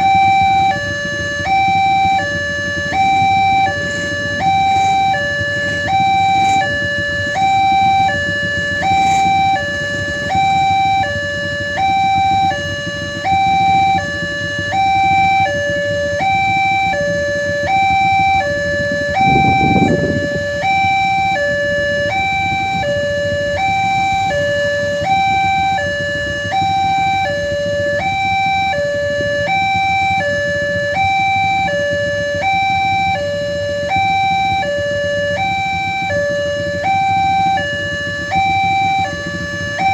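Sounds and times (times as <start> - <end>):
level crossing alarm tones: 0.0 - 39.9
steady low rumble: 1.2 - 12.3.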